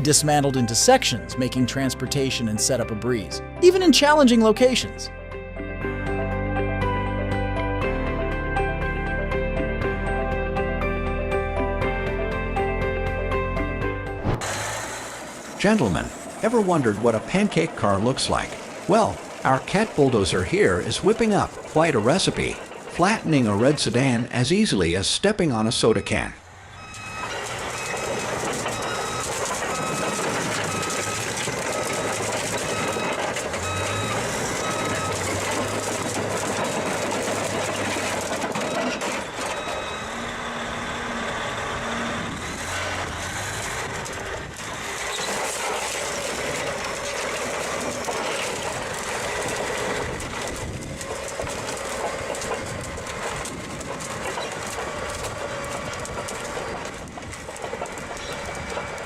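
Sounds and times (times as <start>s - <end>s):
earthmoving machinery engine: 14.1s - 25.0s, 26.1s - 59.0s
reversing alarm beeping: 25.8s - 37.0s, 37.7s - 43.0s, 58.1s - 59.0s.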